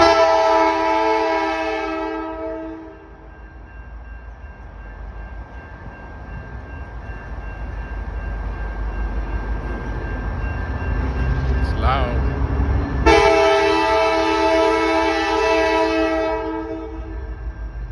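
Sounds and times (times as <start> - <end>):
locomotive air horn chord: 0.0 - 3.0, 13.0 - 17.3
train rumble: 2.3 - 17.9.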